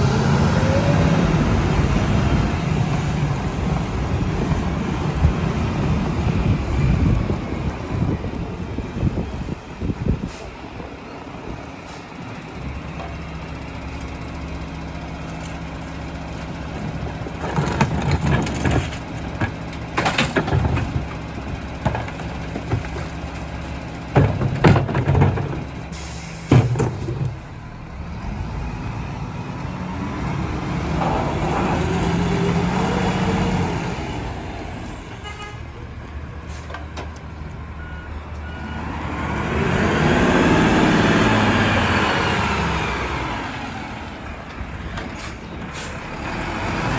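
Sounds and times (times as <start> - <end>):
garbage truck engine: 0.0 - 46.9
trash and metal clanking: 15.2 - 27.8.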